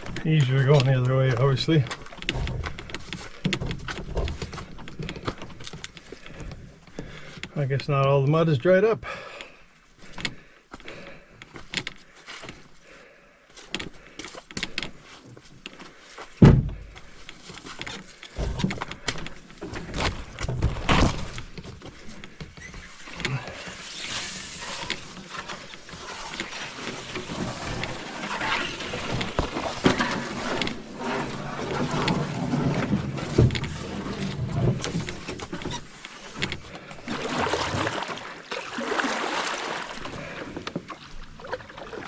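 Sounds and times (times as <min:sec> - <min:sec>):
heavy thump: 0:16.4 - 0:16.9
rustling: 0:17.0 - 0:37.9.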